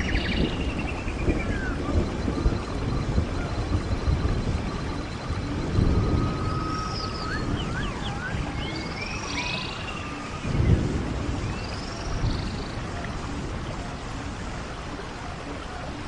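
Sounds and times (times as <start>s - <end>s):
whistled animal calls: 0.0s - 10.9s
rain-like hiss: 0.0s - 16.0s.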